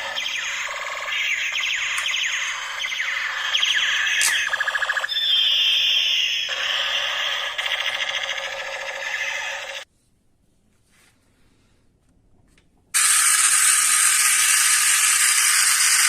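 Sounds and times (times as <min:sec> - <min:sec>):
electronic falling chirps: 0:00.0 - 0:09.8
rapid electronic pulsing: 0:00.0 - 0:09.8
steady high electronic tone: 0:00.0 - 0:09.8.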